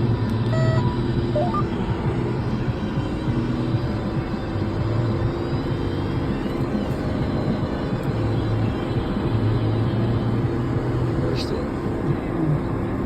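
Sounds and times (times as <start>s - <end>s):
tractor diesel engine droning: 0.0s - 3.7s.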